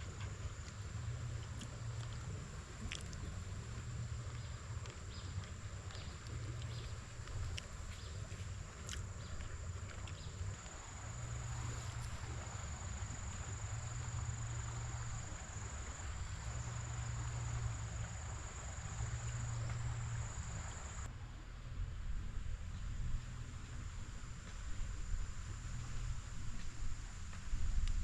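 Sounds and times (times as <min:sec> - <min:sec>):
insect trill: 0:10.6 - 0:21.1.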